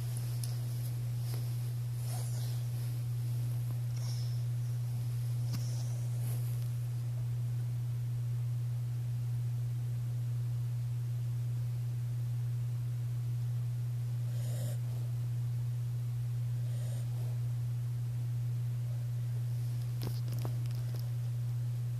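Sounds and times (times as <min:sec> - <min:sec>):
dog snoring faintly: 0:00.0 - 0:06.7, 0:14.2 - 0:15.2, 0:16.5 - 0:17.5
steady low hum: 0:00.0 - 0:21.9.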